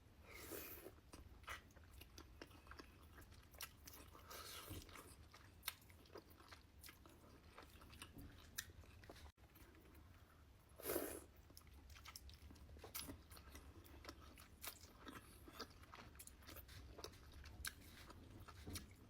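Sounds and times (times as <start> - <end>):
person chewing and biting: 10.9 - 19.0.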